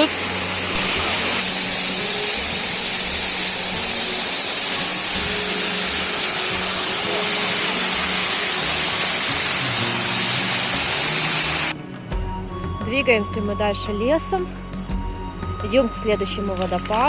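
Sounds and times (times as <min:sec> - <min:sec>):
waterfall rushing: 0:00.0 - 0:11.8.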